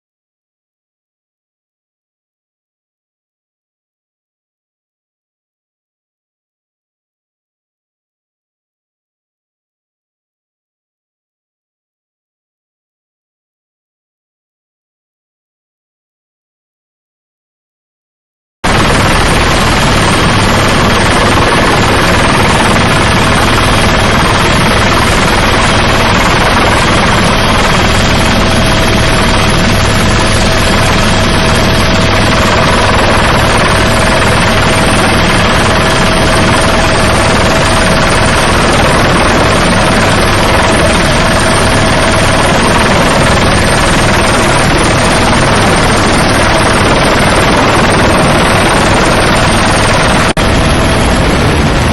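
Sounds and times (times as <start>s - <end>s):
helicopter rotor and engine: 18.6s - 51.9s.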